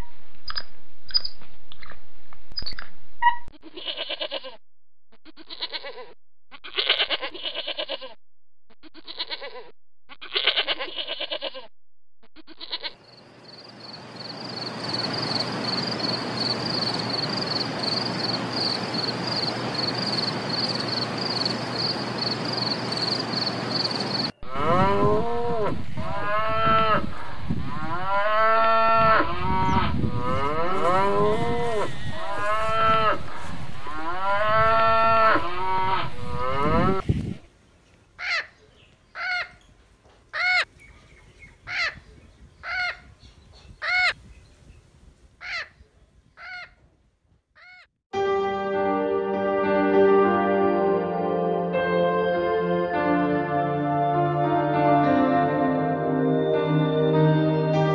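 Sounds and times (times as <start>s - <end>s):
sheep bleating: 3.6s - 4.6s, 5.3s - 8.2s, 8.9s - 11.7s, 12.4s - 13.0s
insect chirring: 13.0s - 24.3s
cows mooing: 24.4s - 37.0s.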